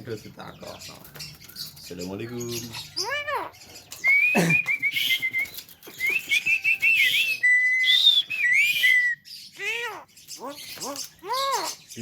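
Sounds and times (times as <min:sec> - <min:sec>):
harsh raspy bird chatter: 0:00.0 - 0:12.0
bird whistling: 0:02.4 - 0:12.0.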